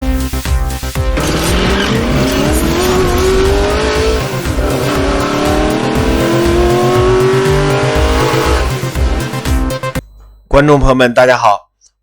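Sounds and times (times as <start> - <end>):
car engine accelerating hard: 1.2 - 10.0.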